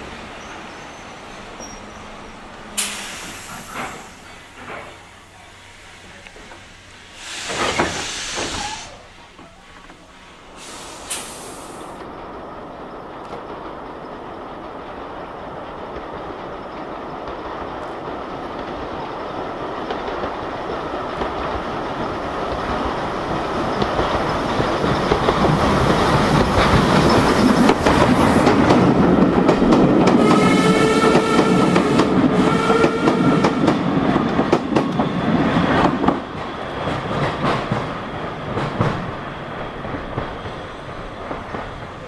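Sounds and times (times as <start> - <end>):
train wheels clicking on rail joints: 0.4 - 42.0.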